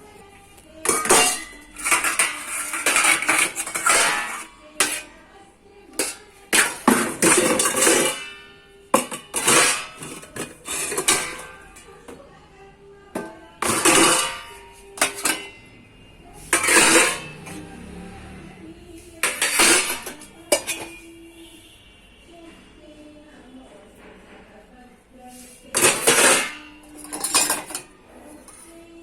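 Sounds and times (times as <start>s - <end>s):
dishes and utensils clattering: 0.8s - 5.2s, 5.9s - 12.3s, 13.1s - 18.0s, 19.2s - 21.2s, 25.3s - 29.0s.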